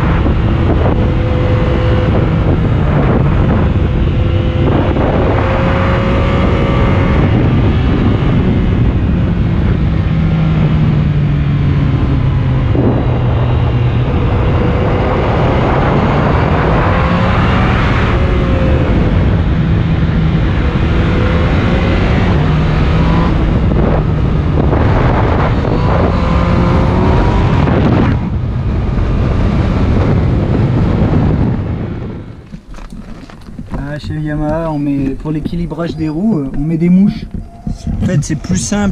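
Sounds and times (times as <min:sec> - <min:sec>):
motorcycle engine revving through gears: 0:00.0 - 0:38.9
wind buffeting microphone: 0:00.0 - 0:38.9.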